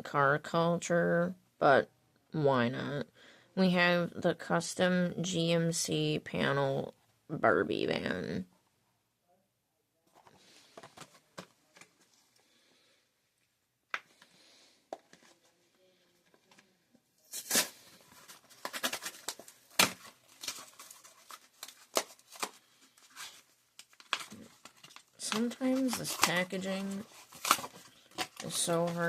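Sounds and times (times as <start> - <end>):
packaging rustling: 10.1 - 12.4, 14.1 - 29.0
blister package tearing open: 17.3 - 29.0.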